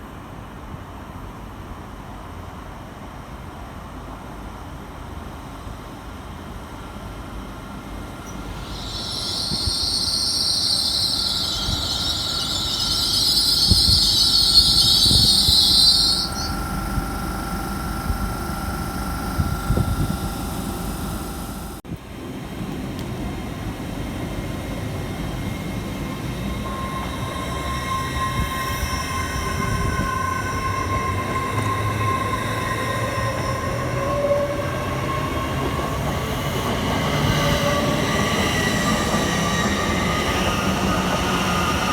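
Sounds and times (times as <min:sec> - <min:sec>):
train rumble: 0:06.6 - 0:41.9
faint whine: 0:08.1 - 0:21.8
high-pitched metallic train squeal: 0:08.1 - 0:21.8, 0:24.4 - 0:41.9.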